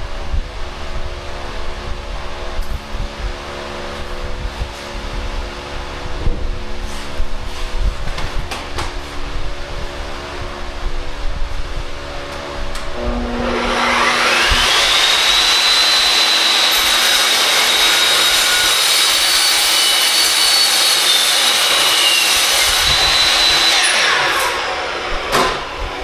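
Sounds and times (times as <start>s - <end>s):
saw motor whining: 12.9s - 26.0s.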